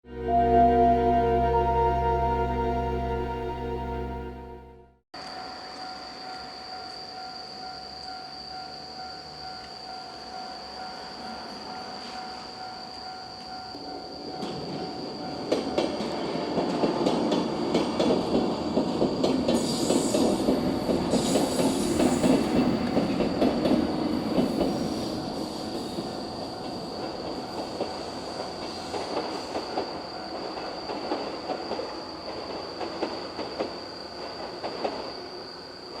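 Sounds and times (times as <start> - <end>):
steady high-pitched tone: 0.0 - 5.0.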